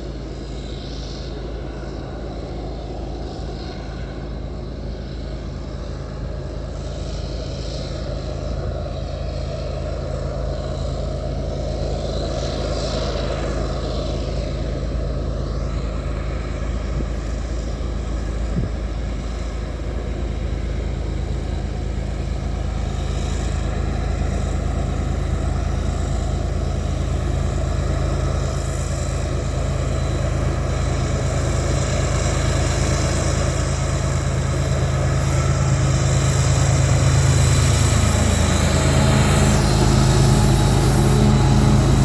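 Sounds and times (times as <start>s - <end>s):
diesel locomotive engine drone: 0.0s - 42.0s.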